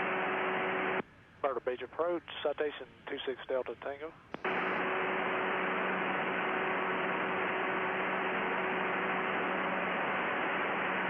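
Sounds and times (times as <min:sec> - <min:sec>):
radio hiss with low hum: 0:00.0 - 0:11.0
radio controller speaking: 0:01.4 - 0:04.2.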